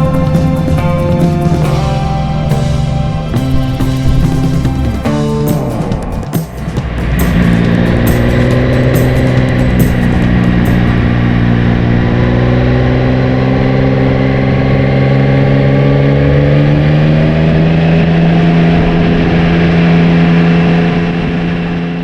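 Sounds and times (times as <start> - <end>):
motorcycle engine pulling on a climb: 0.0 - 21.6.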